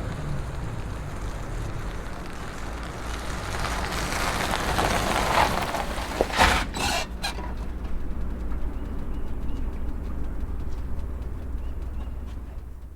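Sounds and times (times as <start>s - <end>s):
car engine running low: 0.0s - 12.9s
loud crunchy burst: 3.3s - 7.8s.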